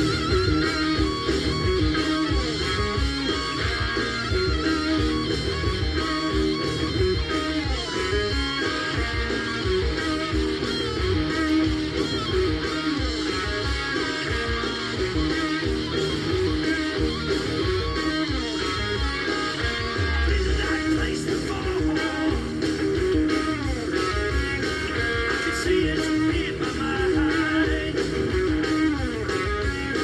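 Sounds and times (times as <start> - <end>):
bass guitar: 0.0 - 30.0
distorted electric guitar: 0.0 - 30.0
drums playing: 0.0 - 30.0
metal rock song: 0.0 - 30.0.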